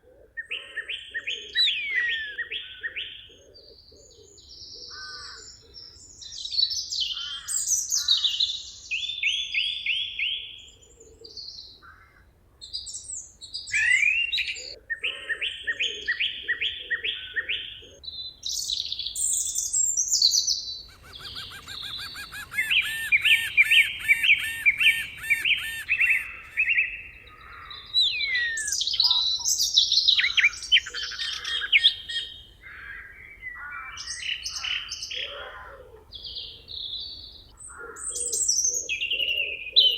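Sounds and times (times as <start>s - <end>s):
songbirds chirping: 0.0s - 39.9s
bird trilling: 20.7s - 33.1s.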